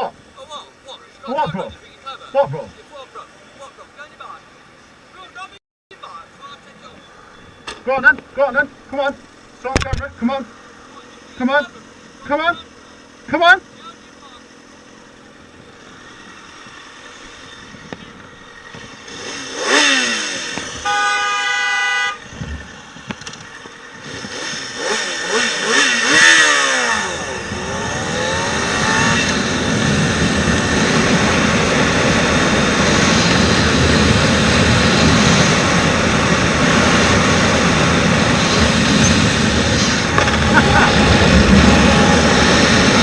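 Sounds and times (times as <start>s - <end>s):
vehicles passing: 0.0s - 43.0s
motorcycle engine: 6.9s - 43.0s
vehicle horn: 20.7s - 22.3s
wind rushing: 27.2s - 43.0s.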